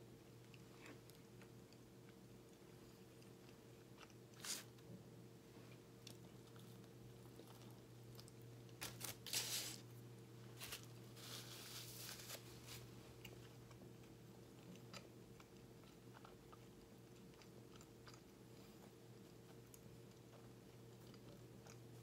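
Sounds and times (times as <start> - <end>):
faint steady hum: 0.0 - 22.0
wet chewing: 13.2 - 22.0.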